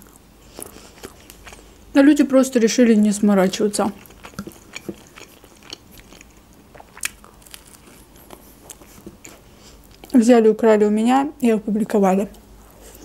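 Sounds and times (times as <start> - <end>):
toast crunching: 0.0 - 1.9, 3.4 - 10.2.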